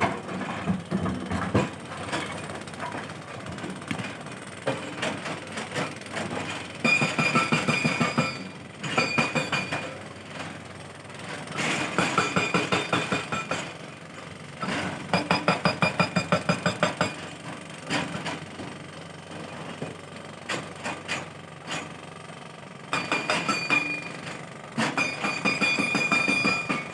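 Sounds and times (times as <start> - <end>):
excavator metallic clanking: 0.0 - 10.1, 22.9 - 26.9.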